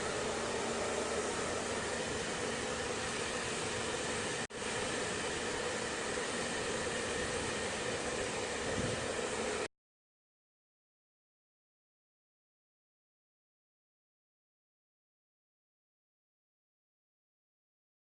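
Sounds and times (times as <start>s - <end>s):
hair dryer running: 0.0s - 9.7s.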